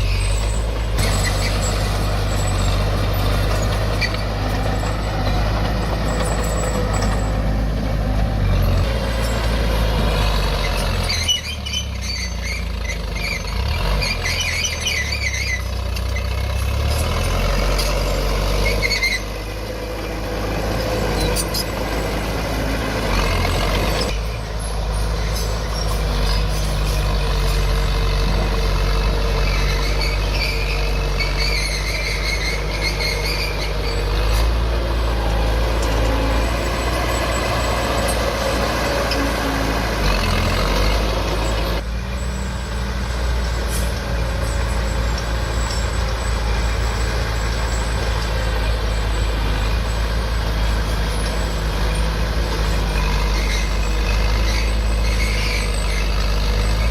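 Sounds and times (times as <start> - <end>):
diesel machinery engine: 0.0 - 56.9
high squeals: 0.0 - 56.9.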